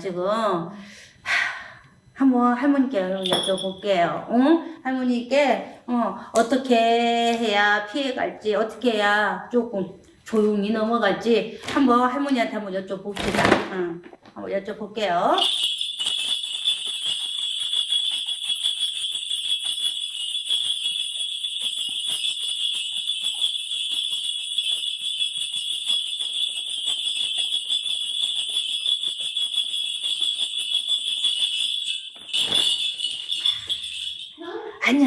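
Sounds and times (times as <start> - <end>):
brass bells jingling: 3.2 - 3.8, 15.4 - 34.8.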